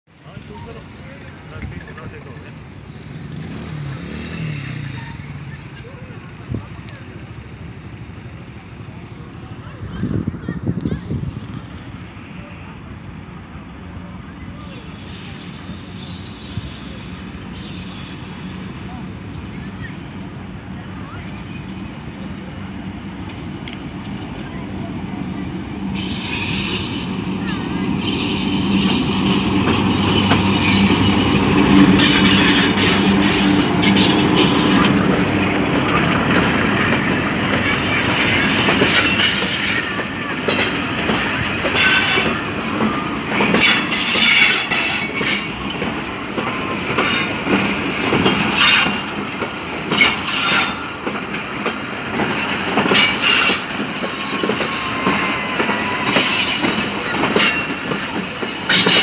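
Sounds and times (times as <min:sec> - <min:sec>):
locomotive engine drone: 0:00.3 - 0:14.8, 0:16.9 - 0:59.0
wheels clacking over rail joints: 0:21.3 - 0:59.0.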